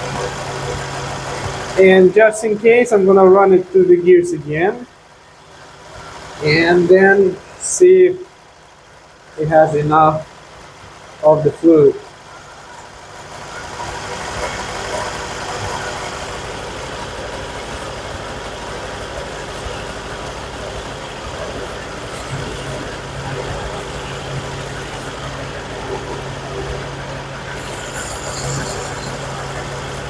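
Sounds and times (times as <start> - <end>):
car engine idling: 0.0 - 30.0
low hum: 9.3 - 30.0.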